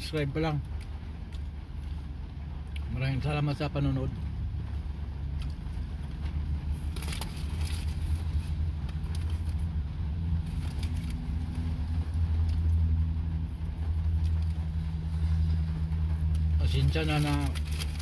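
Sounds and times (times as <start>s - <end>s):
car engine idling: 0.0s - 18.0s
faint clicks and rustles: 4.7s - 18.0s.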